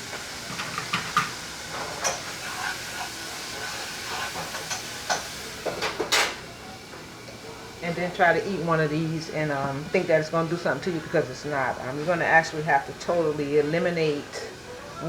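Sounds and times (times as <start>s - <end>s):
frying pan sizzling: 0.0s - 15.0s
utensils knocking against pan: 0.4s - 6.4s.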